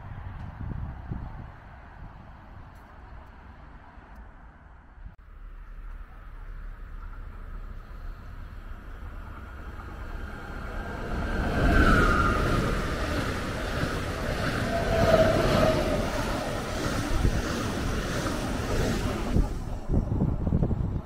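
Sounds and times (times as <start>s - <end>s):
high train whine: 0.0s - 21.0s
train wheels rumbling on rails: 5.3s - 21.0s.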